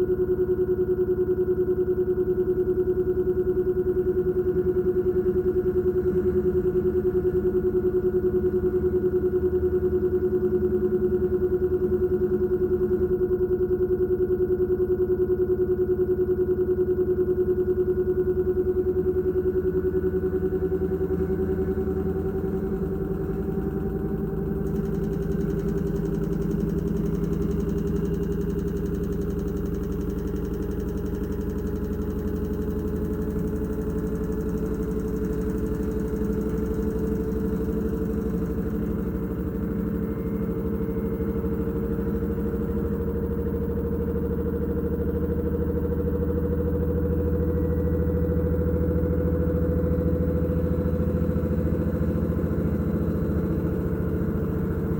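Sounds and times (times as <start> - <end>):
motor whine rising in pitch: 18.5 - 50.1.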